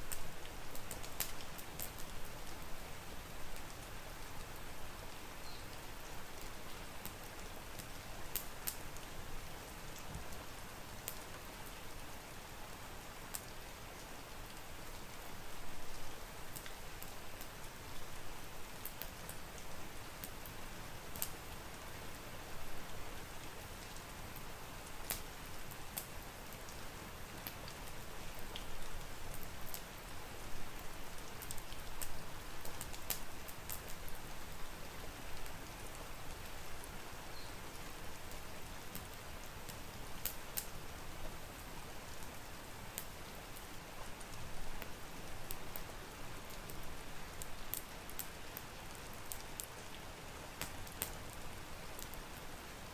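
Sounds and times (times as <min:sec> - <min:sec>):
steady rain hiss: 0:00.0 - 0:52.9
wood fire crackling: 0:00.0 - 0:52.9.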